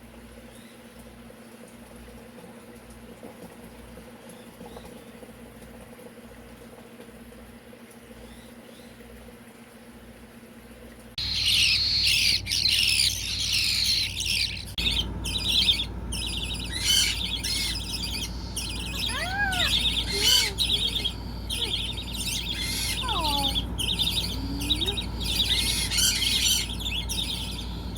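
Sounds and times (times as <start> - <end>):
low steady hum: 0.0 - 27.9
parakeets chattering and squawking: 11.2 - 27.9.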